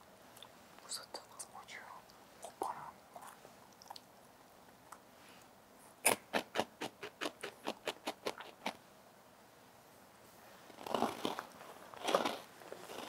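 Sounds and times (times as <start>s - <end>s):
crisp chip crunching: 10.8s - 13.0s.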